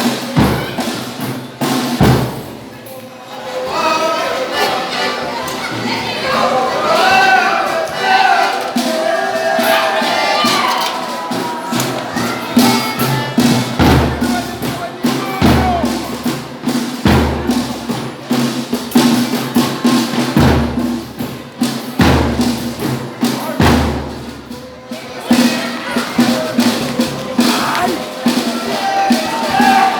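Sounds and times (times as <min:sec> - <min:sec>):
people singing: 0:03.4 - 0:16.1, 0:25.4 - 0:29.9.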